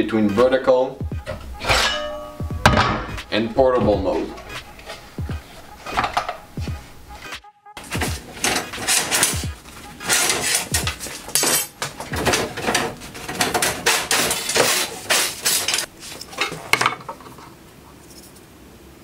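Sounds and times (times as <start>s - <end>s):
steel bars clanking together: 1.2s - 5.1s, 5.8s - 6.6s, 7.8s - 17.2s.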